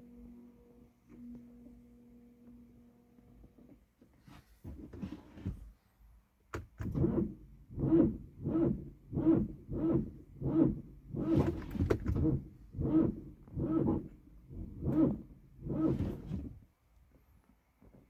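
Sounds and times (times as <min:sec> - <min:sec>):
starter motor cranking slowly: 0:07.0 - 0:16.4.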